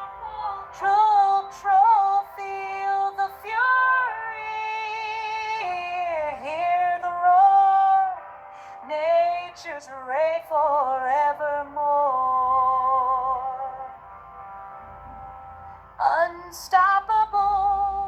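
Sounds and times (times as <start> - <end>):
synthetic female voice singing: 0.0 - 8.2, 8.8 - 13.9, 16.0 - 18.0.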